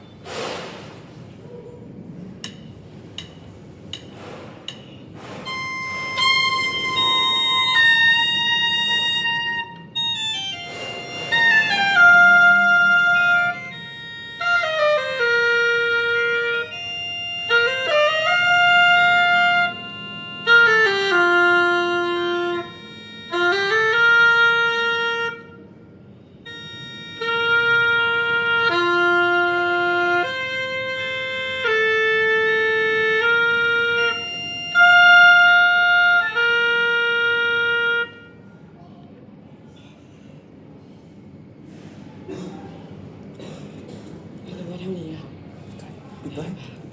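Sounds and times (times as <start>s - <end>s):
oboe playing held notes: 5.3s - 38.9s.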